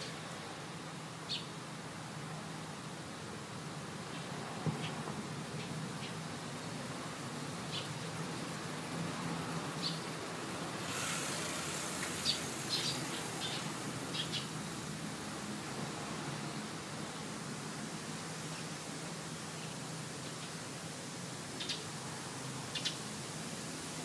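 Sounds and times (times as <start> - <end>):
steady outdoor hiss: 0.0 - 24.0
wild birds chirping: 11.9 - 15.2.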